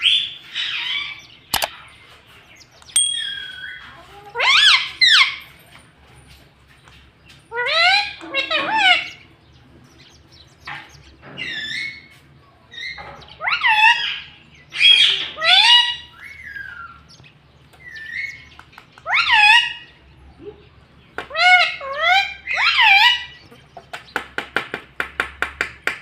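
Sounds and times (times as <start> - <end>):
parakeet calling: 0.0 - 1.9, 7.5 - 9.4, 12.7 - 20.2, 21.3 - 23.6.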